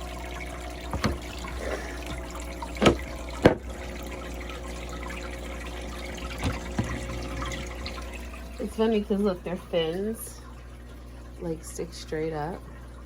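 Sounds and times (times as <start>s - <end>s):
aquarium water trickling: 0.0s - 13.0s.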